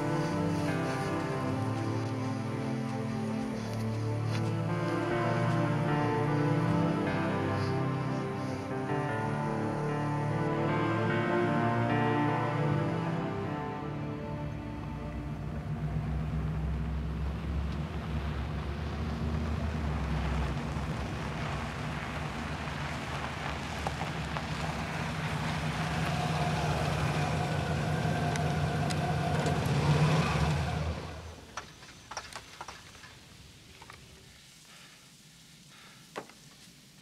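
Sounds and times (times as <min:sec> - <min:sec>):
car engine running: 0:14.6 - 0:31.5.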